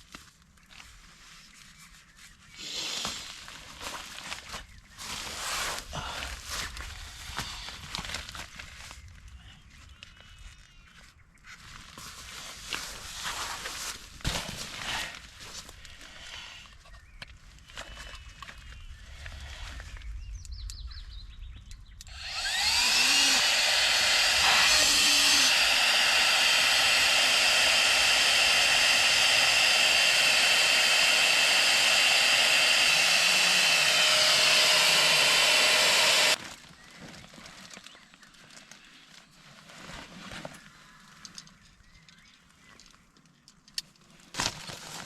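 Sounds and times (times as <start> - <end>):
small electric motor whining: 22.1 - 36.4.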